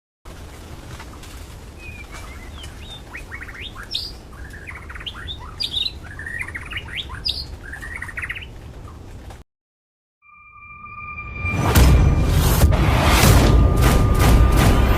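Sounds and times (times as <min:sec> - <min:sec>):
bird singing trills and whistles: 0:01.8 - 0:08.5.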